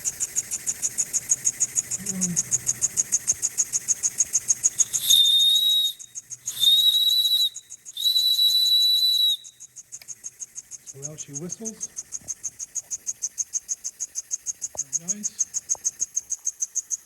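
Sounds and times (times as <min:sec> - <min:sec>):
steam whistle blasts: 0:04.9 - 0:09.4.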